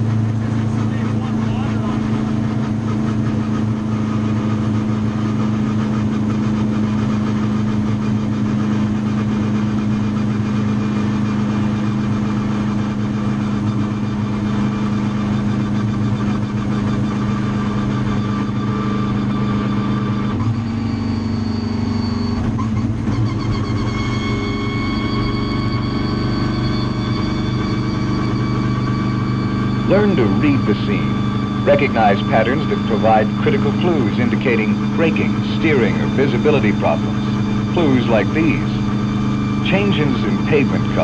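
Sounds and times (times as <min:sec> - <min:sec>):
vehicle engine running: 0:00.0 - 0:41.0.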